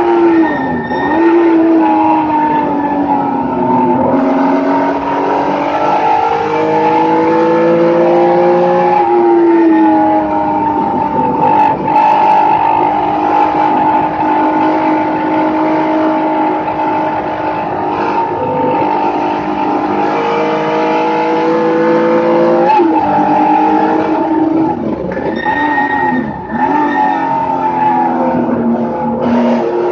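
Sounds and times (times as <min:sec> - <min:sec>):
race car engine under load: 0:00.0 - 0:29.9
road and wind noise: 0:00.0 - 0:29.9.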